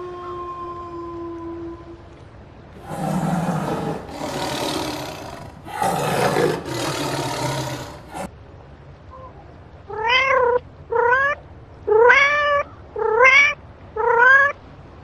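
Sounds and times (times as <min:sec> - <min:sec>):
large animal roaring: 0:02.8 - 0:08.3.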